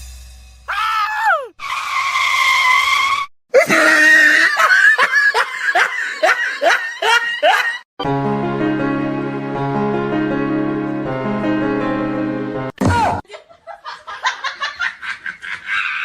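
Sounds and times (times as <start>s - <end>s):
music: 0.0s - 0.7s, 8.0s - 12.8s
high-pitched voice screaming: 0.7s - 1.6s
laugh-like yelps: 3.6s - 7.8s, 13.3s - 16.0s.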